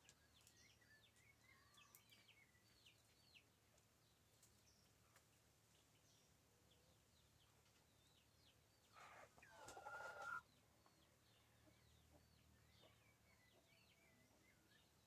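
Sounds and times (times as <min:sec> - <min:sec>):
small birds chirping: 0:00.0 - 0:15.0
chicken calling: 0:09.0 - 0:10.4.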